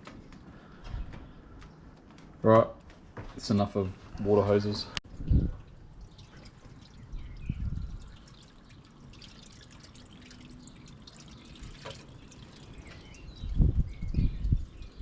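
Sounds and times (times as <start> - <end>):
liquid dripping and trickling: 5.0 - 15.0.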